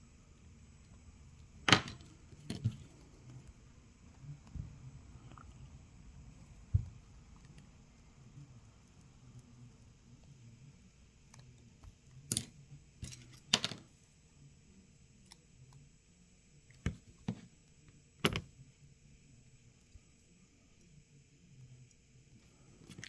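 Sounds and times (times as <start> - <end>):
small tools clicking and tapping: 11.3 - 13.8.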